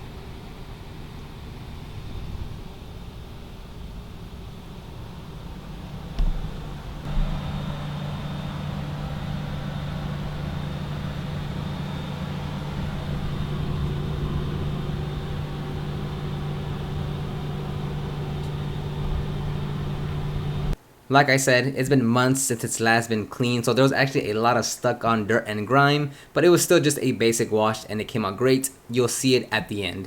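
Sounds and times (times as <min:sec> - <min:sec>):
machine motor hum with hiss: 0:00.0 - 0:20.8
brief knock: 0:06.2 - 0:06.5.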